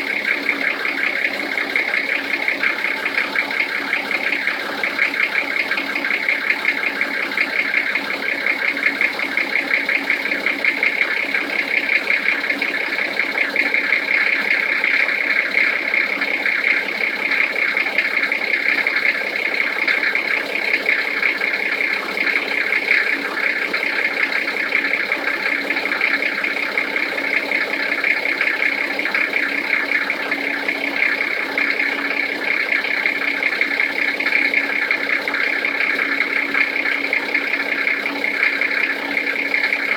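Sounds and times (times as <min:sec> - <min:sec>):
diesel engine idling with knock: 0:00.0 - 0:39.9.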